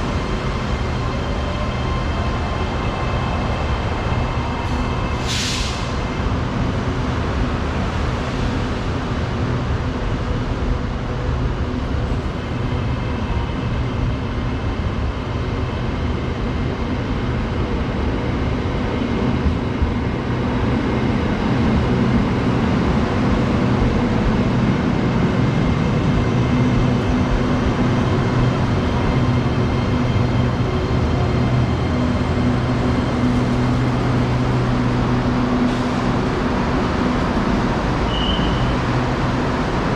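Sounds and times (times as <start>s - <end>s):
electric train rumble: 0.0s - 39.9s.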